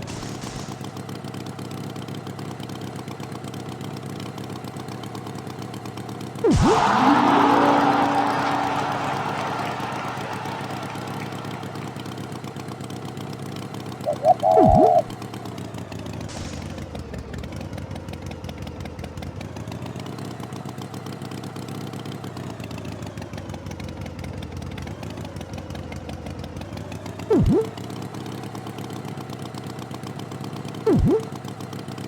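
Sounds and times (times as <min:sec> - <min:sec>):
sound sweeping down and up in pitch: 0:06.4 - 0:08.8, 0:14.1 - 0:15.1, 0:27.3 - 0:27.7, 0:30.9 - 0:31.3.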